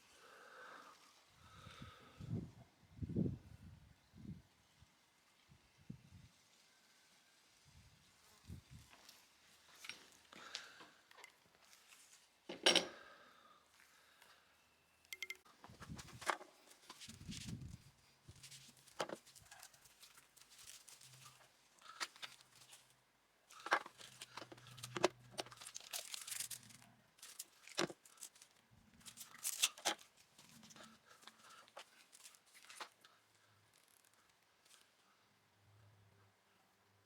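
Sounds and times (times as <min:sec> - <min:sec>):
sharp clicks and knocks: 0:15.1 - 0:15.4
crinkling and tearing: 0:18.3 - 0:35.0.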